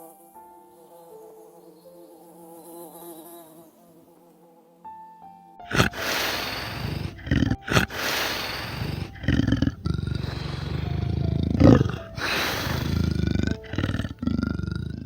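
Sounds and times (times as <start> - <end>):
large animal roaring: 5.7 - 15.0.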